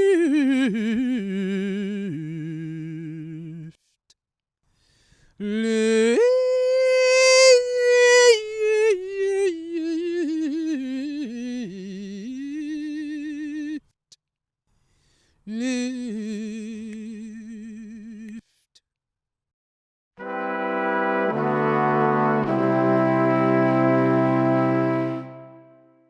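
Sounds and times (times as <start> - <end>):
person singing unaccompanied: 0.0 - 3.7, 5.4 - 13.8, 15.5 - 18.4.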